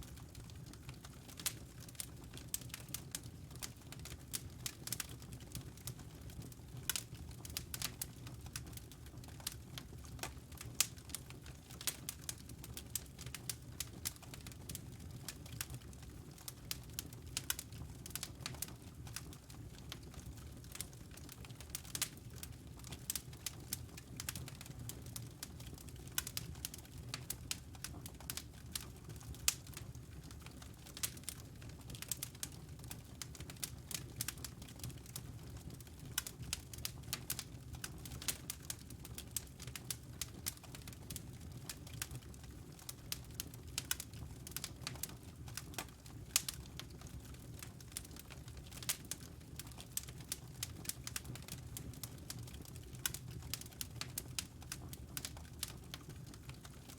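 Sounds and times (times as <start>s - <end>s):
fire crackling and popping: 0.0s - 56.9s.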